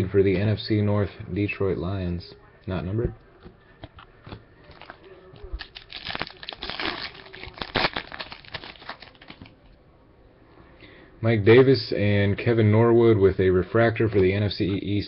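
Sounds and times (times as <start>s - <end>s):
foil wrapper crinkling: 4.7s - 9.5s.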